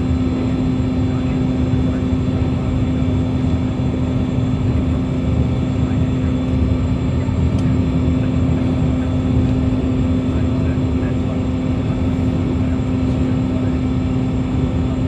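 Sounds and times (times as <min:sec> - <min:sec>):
high-speed ferry drone: 0:00.0 - 0:15.0.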